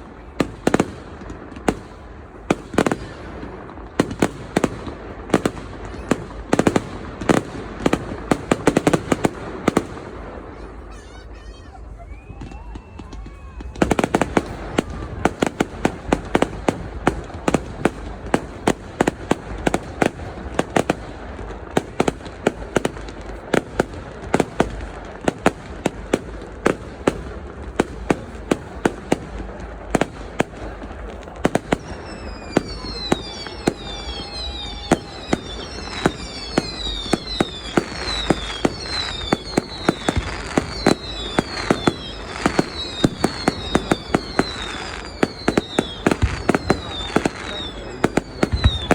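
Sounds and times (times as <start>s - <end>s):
fireworks bangs: 0.0s - 48.9s
fireworks crackling: 0.0s - 48.9s
fireworks whistles falling in pitch: 10.5s - 16.0s, 31.5s - 48.9s.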